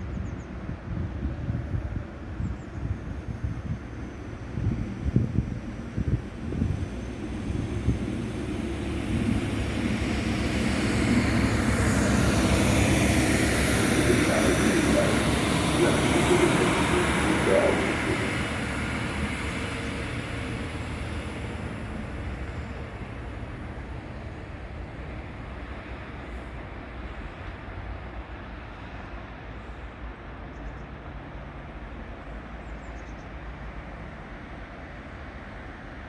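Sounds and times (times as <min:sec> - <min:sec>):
train rail and running noise: 0:00.1 - 0:36.0
steady low rumble: 0:06.1 - 0:20.2.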